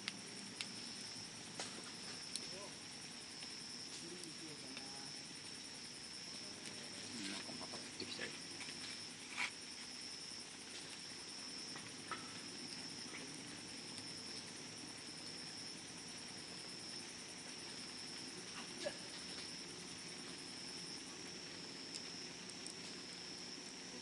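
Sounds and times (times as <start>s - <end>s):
campfire crackling pops: 0.0s - 24.0s.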